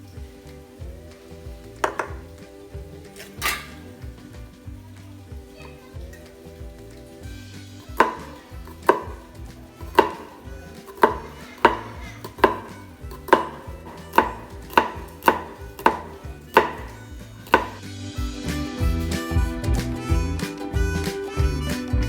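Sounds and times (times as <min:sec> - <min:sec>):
knife chopping on cutting board: 0:01.8 - 0:02.2, 0:07.9 - 0:17.8.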